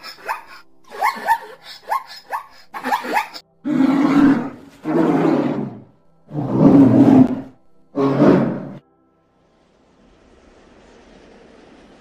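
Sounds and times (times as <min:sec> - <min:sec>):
zebra barking yelps: 0:00.0 - 0:03.4
deep rough bear growl: 0:03.6 - 0:08.8.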